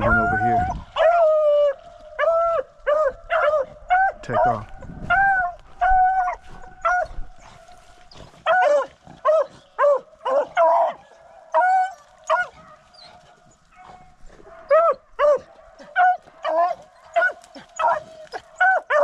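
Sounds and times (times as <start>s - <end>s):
dogs barking: 0.0s - 19.0s.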